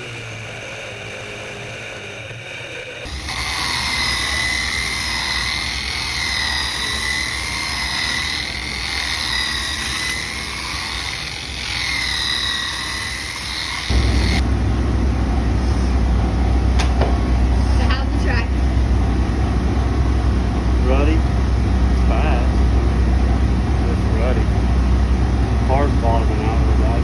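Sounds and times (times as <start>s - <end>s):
deep engine rumble close by: 13.9s - 27.0s
race car engines droning: 13.9s - 27.0s.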